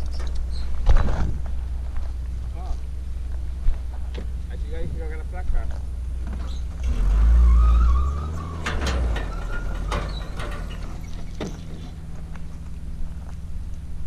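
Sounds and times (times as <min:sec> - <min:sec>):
car engine idling: 0:00.0 - 0:14.0
metal clicks and clanks: 0:08.3 - 0:12.5.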